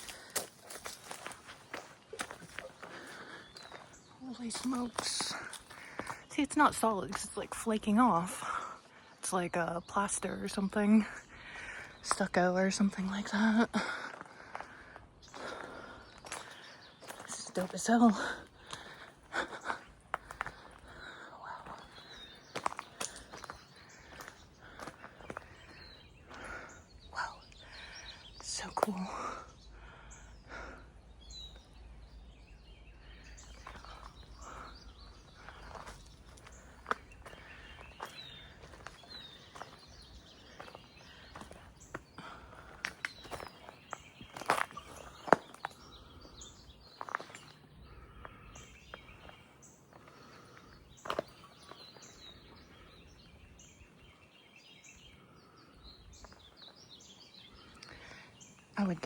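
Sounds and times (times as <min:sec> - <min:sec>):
footstep scuffs: 0:00.0 - 0:02.8
soft rustling footsteps: 0:00.0 - 0:07.7
bird chirps: 0:16.0 - 0:59.0.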